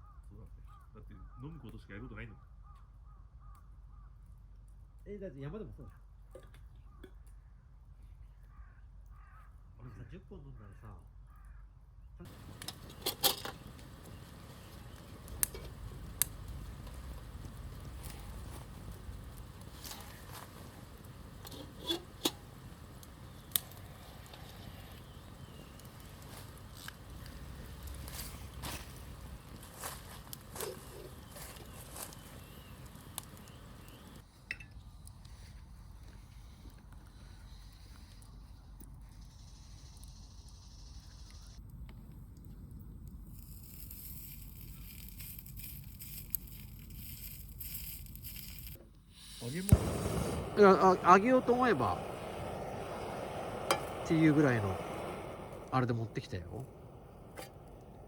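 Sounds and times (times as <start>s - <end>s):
campfire crackling and popping: 12.2s - 37.0s, 41.6s - 58.0s
low steady rumble: 49.2s - 58.0s
sharp pop: 49.5s - 55.7s.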